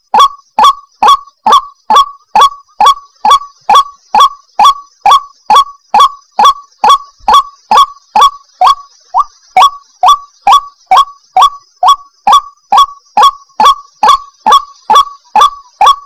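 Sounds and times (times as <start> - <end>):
waterhen calling: 0.0 - 16.0.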